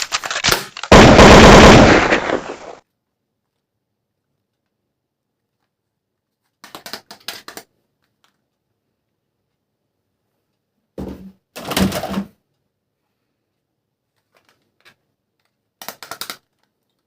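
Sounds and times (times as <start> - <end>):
plastic toy gun clicking: 0.0 - 0.9, 15.8 - 16.7.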